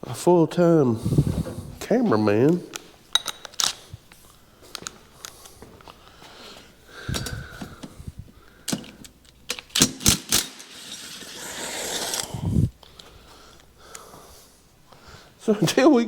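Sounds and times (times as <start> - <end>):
metallic tool clicks and clinks: 3.1 - 3.8.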